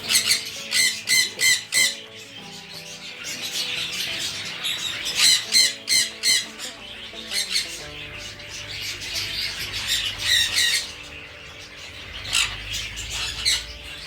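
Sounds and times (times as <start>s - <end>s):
parrots squawking: 0.0s - 14.0s.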